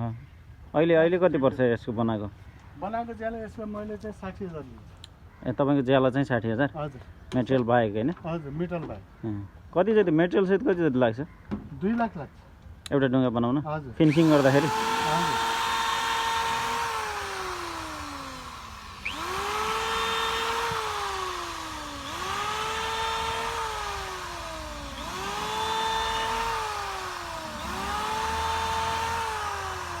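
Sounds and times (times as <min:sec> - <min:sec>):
power tool motor whining: 0:14.0 - 0:30.0.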